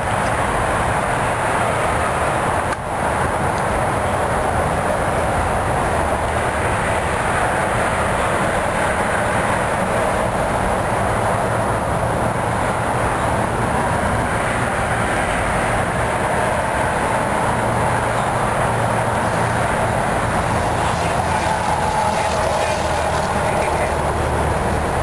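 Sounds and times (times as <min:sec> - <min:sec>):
train rumbling along track: 0:00.0 - 0:25.0.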